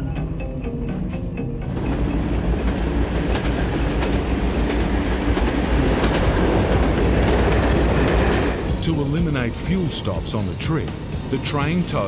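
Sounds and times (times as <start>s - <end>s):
freight train rumbling: 0.0s - 12.0s
wheels clicking over rail joints: 1.7s - 9.5s.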